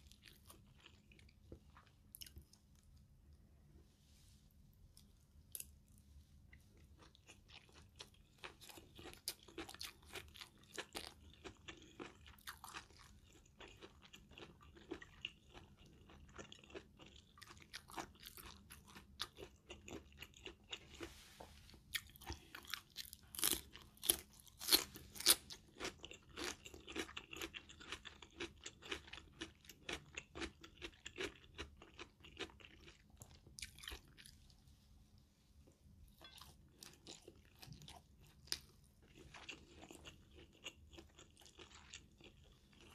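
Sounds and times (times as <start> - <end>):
close chewing with crunches: 5.0 - 34.6, 36.2 - 42.9.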